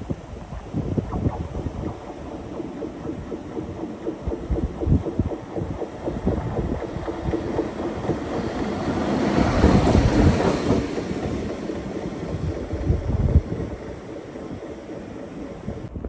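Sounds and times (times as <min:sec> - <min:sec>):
train wheels clattering over rails: 0:06.1 - 0:15.7.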